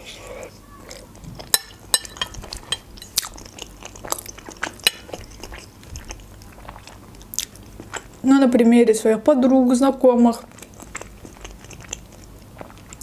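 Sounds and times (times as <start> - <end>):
chewing with mouth clicks: 0.9 - 8.2, 10.4 - 13.0.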